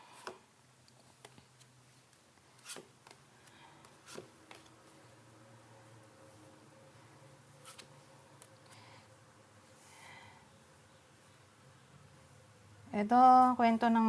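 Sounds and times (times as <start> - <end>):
cards tapping and sliding: 0.2 - 5.0, 7.6 - 8.6.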